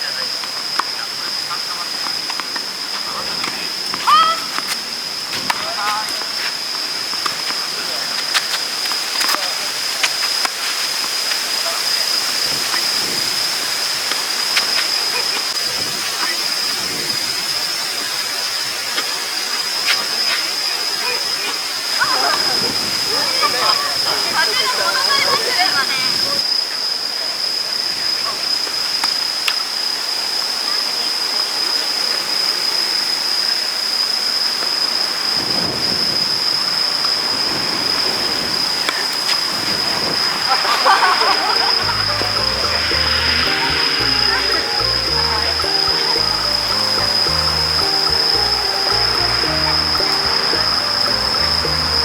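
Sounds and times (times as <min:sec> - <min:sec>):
wind rushing over microphone: 0:15.5 - 0:17.8, 0:35.4 - 0:47.4
high-pitched whine: 0:40.1 - 0:52.0.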